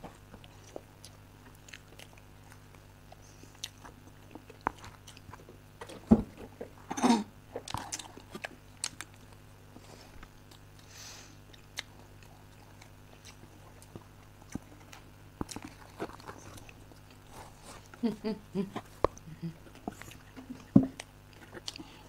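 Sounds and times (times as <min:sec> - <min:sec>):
people chewing: 0:00.0 - 0:22.0
steady low hum: 0:00.0 - 0:22.0.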